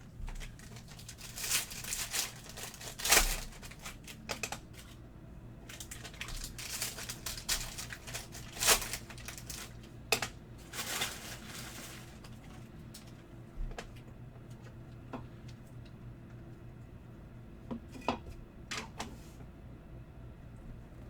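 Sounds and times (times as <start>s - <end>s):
foil wrappers crinkling and tearing: 0.0s - 5.0s, 5.6s - 13.2s.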